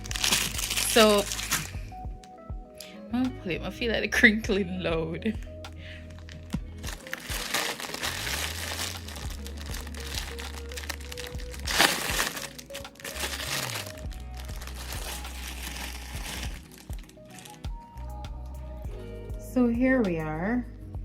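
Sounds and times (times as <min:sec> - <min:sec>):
plastic packaging crinkling: 0:00.0 - 0:01.8, 0:06.0 - 0:17.9
background music: 0:00.0 - 0:21.0.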